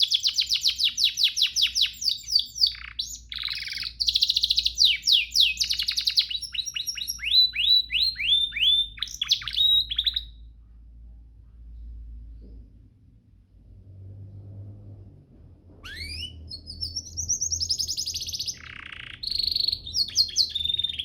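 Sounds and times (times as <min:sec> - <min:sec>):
canary singing trills: 0:00.0 - 0:10.5, 0:15.8 - 0:21.0
faint low hum: 0:00.0 - 0:21.0.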